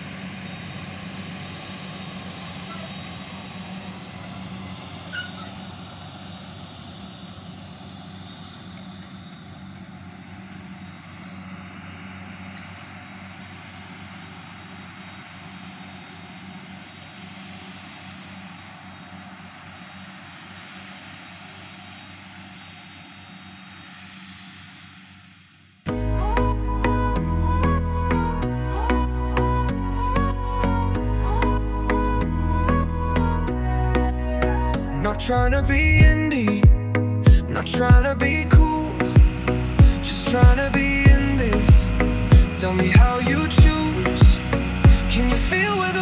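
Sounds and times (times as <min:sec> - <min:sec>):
harvester engine and chopping unit: 0:00.0 - 0:24.7, 0:34.9 - 0:46.0.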